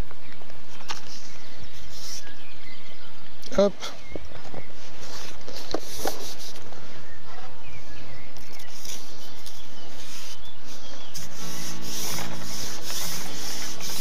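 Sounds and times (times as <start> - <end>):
faint bird chirps: 0.0 - 5.5, 6.6 - 12.2
steady outdoor noise: 0.0 - 14.0.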